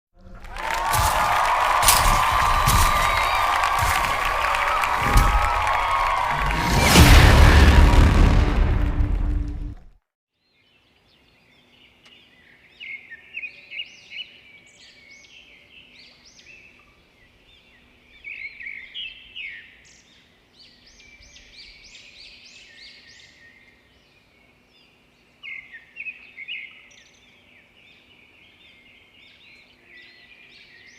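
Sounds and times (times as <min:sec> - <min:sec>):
songbirds chirping and twittering: 0:10.4 - 0:30.9.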